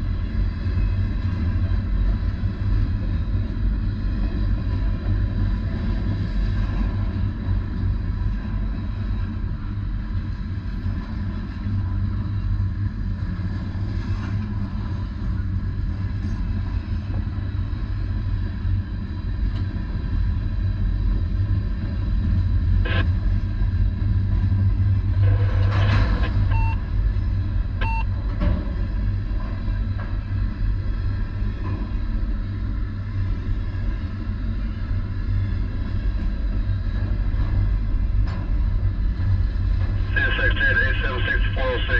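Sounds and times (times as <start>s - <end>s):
short beeps: 26.5s - 26.8s, 27.8s - 28.0s.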